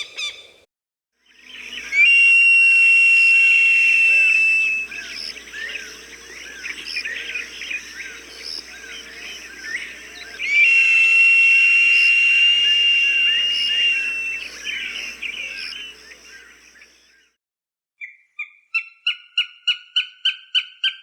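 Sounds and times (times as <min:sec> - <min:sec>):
small birds chirping: 0:01.3 - 0:02.1, 0:03.8 - 0:17.2
falcon cry: 0:01.6 - 0:16.5.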